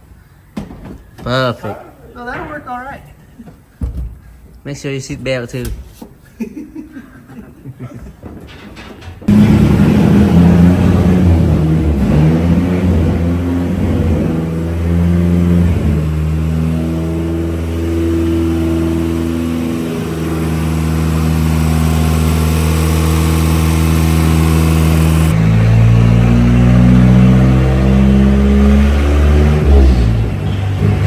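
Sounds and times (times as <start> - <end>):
truck engine running under load: 9.3 - 31.0
high turbo hiss: 21.0 - 25.3.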